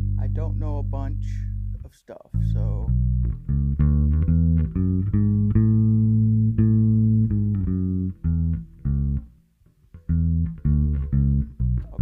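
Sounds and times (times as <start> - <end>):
electric bass plucked notes: 0.0 - 12.0.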